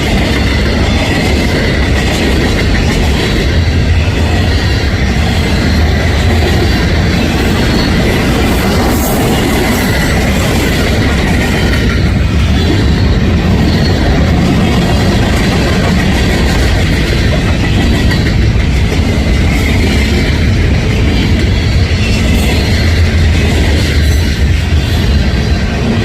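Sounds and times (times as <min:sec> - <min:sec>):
rail joints clickety-clack: 0:00.0 - 0:26.0
train wheels rumbling on rail: 0:00.0 - 0:26.0.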